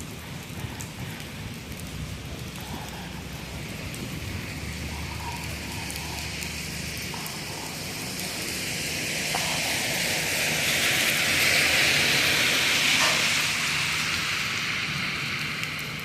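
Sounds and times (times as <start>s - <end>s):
steady rainfall: 0.0s - 16.0s
vehicle passing on wet road: 0.0s - 16.0s.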